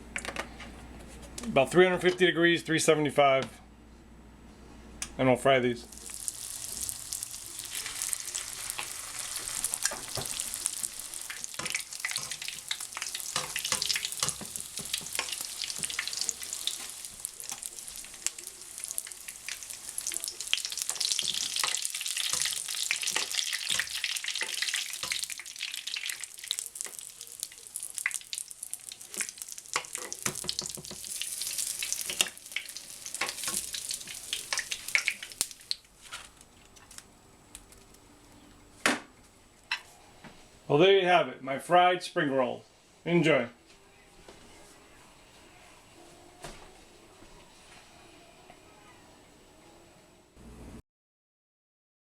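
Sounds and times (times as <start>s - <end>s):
spring rolls deep-frying in oil: 5.9s - 35.8s.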